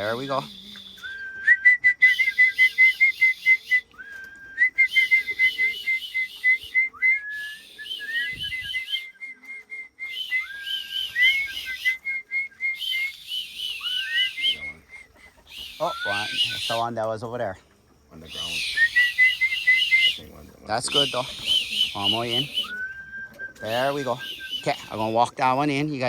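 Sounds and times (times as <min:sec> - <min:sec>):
person whistling to pigeons: 0:00.0 - 0:17.0, 0:18.2 - 0:26.0.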